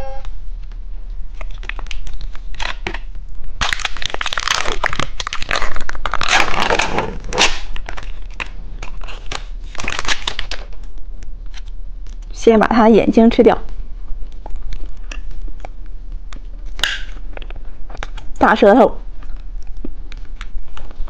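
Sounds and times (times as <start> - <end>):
plastic wrapper crinkling: 1.4 - 11.7.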